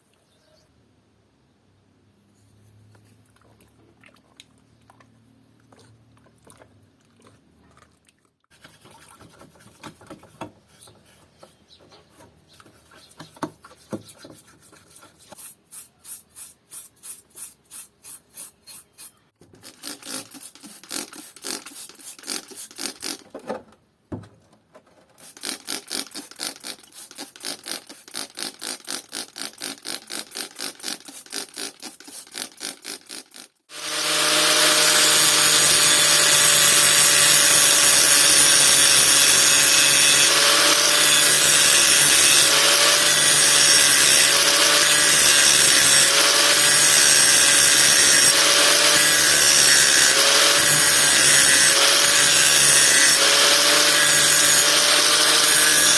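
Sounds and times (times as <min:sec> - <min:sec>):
rasp strokes on wood: 0:08.5 - 0:23.2, 0:25.2 - 0:55.9
power tool whining: 0:33.7 - 0:55.9.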